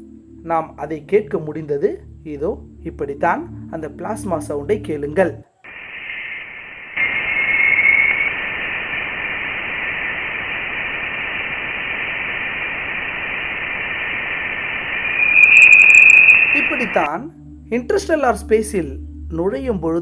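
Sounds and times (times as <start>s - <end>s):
radio-like hiss: 5.6s - 17.1s
thin tone: 5.7s - 9.6s, 10.5s - 17.1s.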